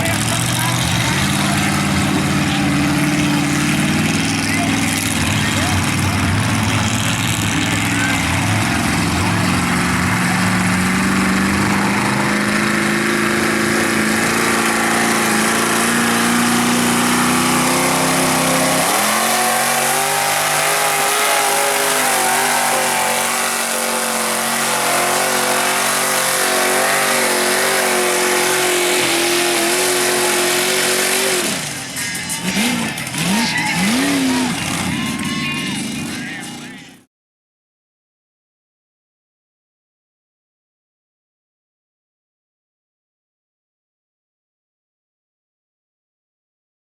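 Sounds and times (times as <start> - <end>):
truck engine revving high: 0.0 - 37.0.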